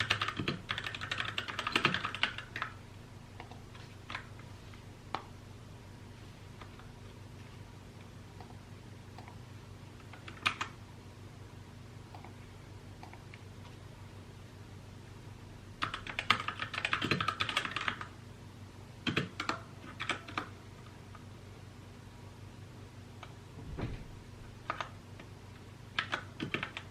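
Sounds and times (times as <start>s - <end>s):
mechanical keyboard typing: 0.0s - 2.8s, 3.4s - 4.3s, 10.0s - 10.8s, 15.8s - 18.1s, 19.0s - 20.5s, 26.0s - 26.9s
low steady hum: 0.0s - 26.9s.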